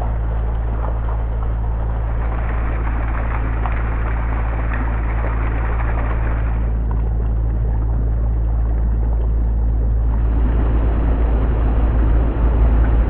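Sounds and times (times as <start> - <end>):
river water rushing: 0.0 - 6.7
heavy road traffic rumble: 0.0 - 7.3, 10.0 - 13.0.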